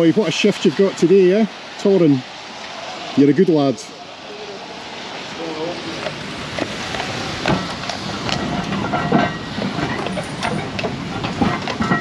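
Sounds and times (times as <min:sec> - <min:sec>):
tram hum and hiss: 0:00.0 - 0:12.0
tram clicks and knocks on rails: 0:05.9 - 0:12.0.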